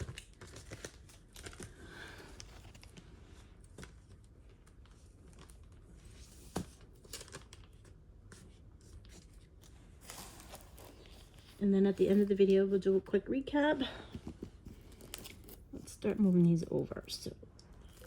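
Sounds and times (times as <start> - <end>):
plastic bags rustling: 8.9 - 13.2.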